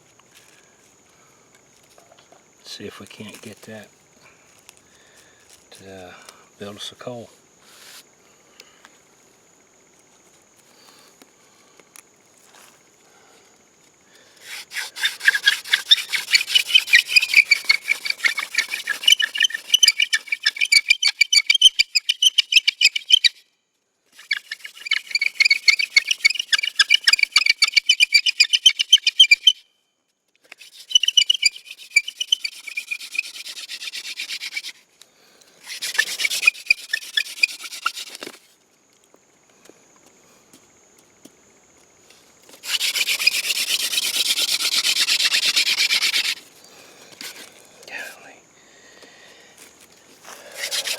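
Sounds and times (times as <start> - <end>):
hand drill rubbing wood on wood: 14.4 - 23.3, 24.2 - 29.5, 30.5 - 34.8, 35.6 - 38.5, 42.5 - 48.0, 50.2 - 50.9.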